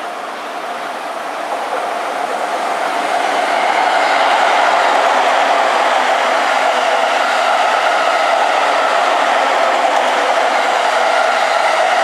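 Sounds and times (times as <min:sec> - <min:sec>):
electric train running past: 0:00.0 - 0:12.0.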